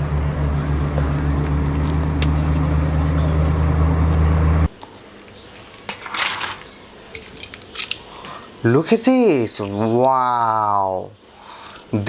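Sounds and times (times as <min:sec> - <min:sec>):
car engine humming: 0:00.0 - 0:05.0
brief rustle: 0:05.5 - 0:08.4.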